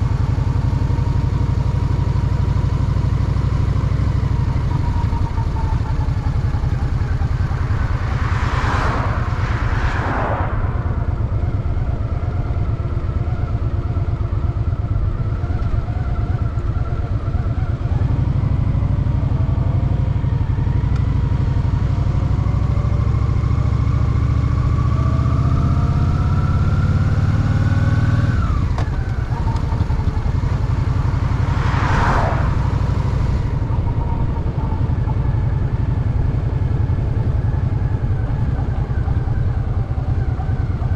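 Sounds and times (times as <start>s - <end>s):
motorcycle engine accelerating: 0.0s - 40.9s
short rushes of noise: 7.4s - 12.0s.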